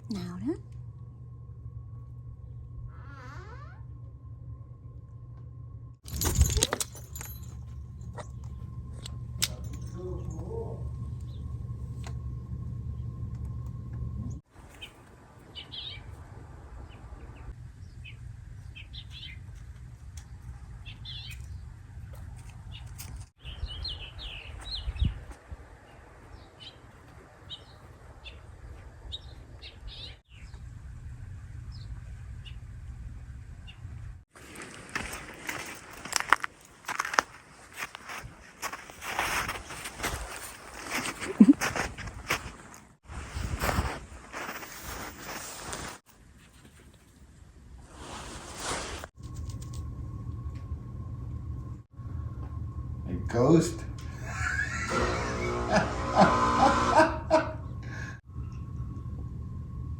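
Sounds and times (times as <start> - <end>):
steady low rumble: 0.0 - 14.5, 15.1 - 34.2, 49.2 - 54.3, 57.7 - 59.9
small birds chirping: 14.2 - 16.2, 16.8 - 21.8, 22.4 - 30.7.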